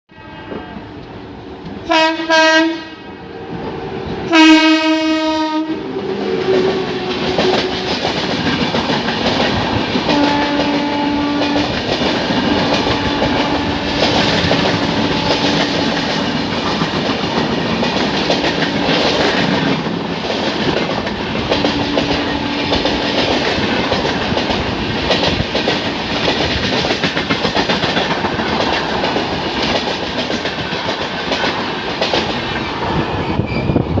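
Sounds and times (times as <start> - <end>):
train horn: 0.1 - 1.0, 1.8 - 3.1, 4.3 - 7.8, 10.1 - 16.0, 21.4 - 23.1
train rushing noise: 0.2 - 34.0
train wheels clattering: 6.1 - 34.0.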